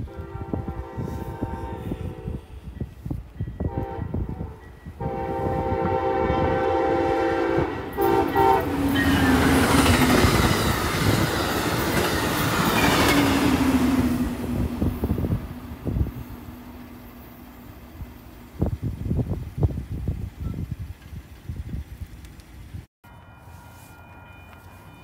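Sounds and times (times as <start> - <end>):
locomotive chime horn: 0.0 - 10.0, 23.0 - 25.0
train passing at speed: 0.0 - 25.0.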